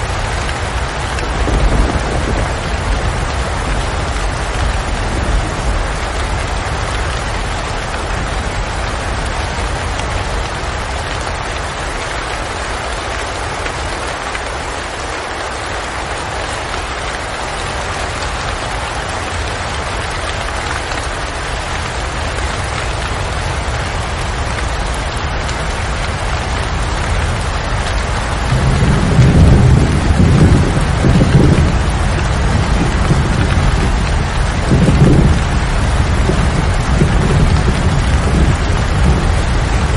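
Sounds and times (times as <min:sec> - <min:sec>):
thunder rumbling: 0:00.0 - 0:11.9, 0:21.8 - 0:39.9
heavy rain falling: 0:00.0 - 0:39.9.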